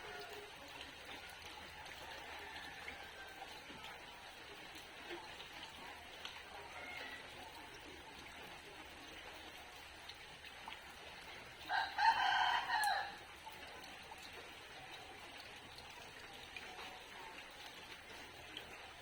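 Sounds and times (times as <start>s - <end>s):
rain falling: 0.0s - 19.0s
rooster crowing: 2.1s - 3.6s, 11.7s - 13.2s.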